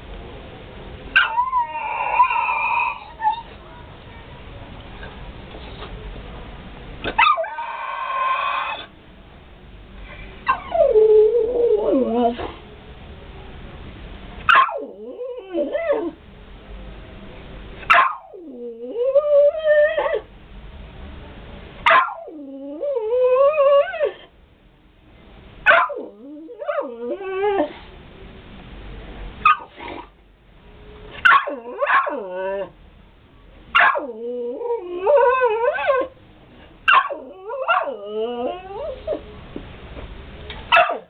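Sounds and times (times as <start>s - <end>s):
dog whining howls: 1.2s - 3.5s, 7.2s - 8.9s, 10.5s - 12.5s, 14.5s - 16.2s, 18.0s - 20.2s, 22.0s - 24.2s, 25.7s - 27.7s, 31.3s - 32.7s, 33.8s - 36.1s, 36.9s - 39.2s.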